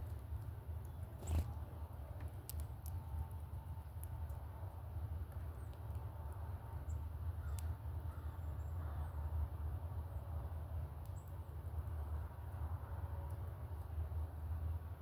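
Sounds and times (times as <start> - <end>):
small birds chipping: 0.0 - 4.5, 5.2 - 9.2, 10.0 - 12.6.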